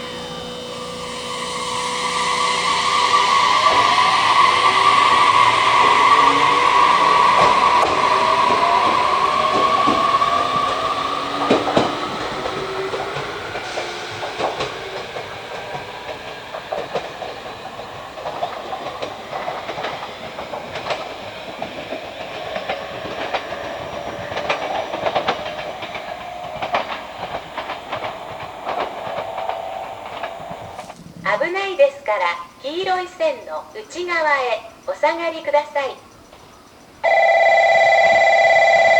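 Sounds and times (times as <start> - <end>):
train wheels clicking on rail joints: 0.0 - 31.7
rising train whine: 0.0 - 38.9.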